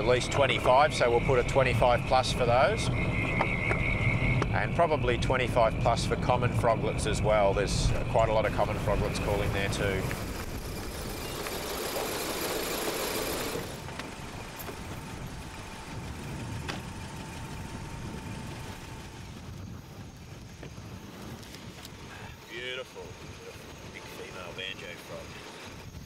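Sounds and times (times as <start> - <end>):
car engine idling: 0.0 - 19.5
steady hiss: 6.4 - 26.0.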